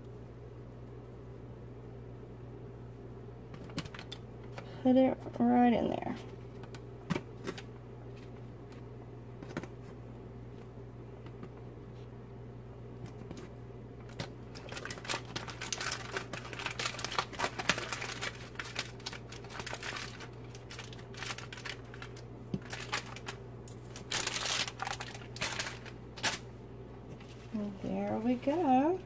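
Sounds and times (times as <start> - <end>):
plastic wrapping crinkling: 14.0 - 26.5.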